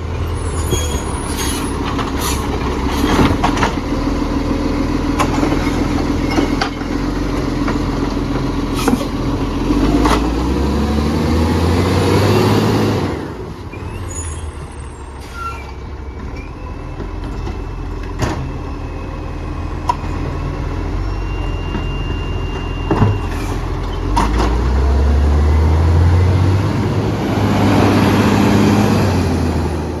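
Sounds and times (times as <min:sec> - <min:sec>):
diesel engine revving: 0:00.0 - 0:16.2, 0:23.2 - 0:30.0.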